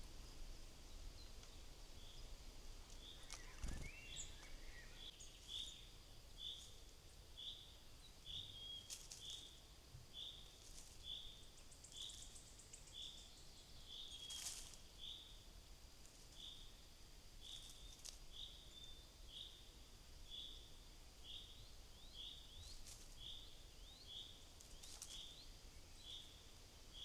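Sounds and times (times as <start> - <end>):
songbird calling: 0.3 - 6.8, 7.4 - 15.4, 20.3 - 27.0.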